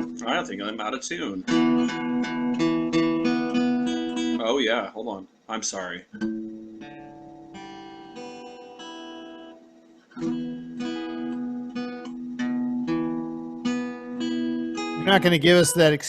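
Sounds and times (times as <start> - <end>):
acoustic guitar strings plucked: 0.0 - 0.5, 6.1 - 16.0.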